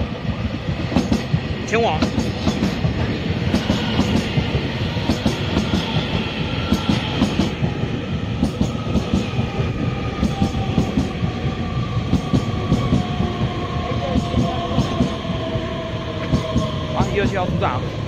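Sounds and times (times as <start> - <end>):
train wheels clacking over rail joints: 0.6 - 9.6, 10.2 - 11.3, 12.1 - 13.3, 14.1 - 15.2, 16.2 - 17.4.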